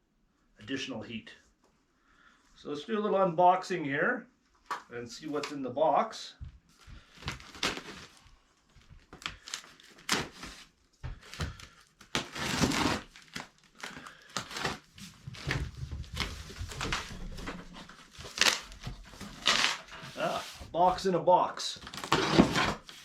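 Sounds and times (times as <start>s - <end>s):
cardboard box packaging rustling: 7.0s - 8.2s, 9.0s - 20.7s, 21.8s - 23.0s.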